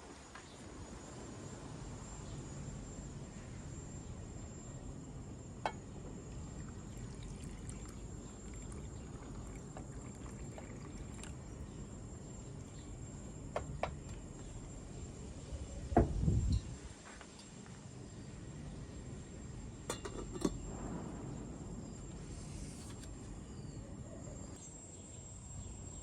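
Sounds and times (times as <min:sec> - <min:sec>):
liquid pouring: 0:06.3 - 0:11.6
steady low background: 0:20.6 - 0:22.5.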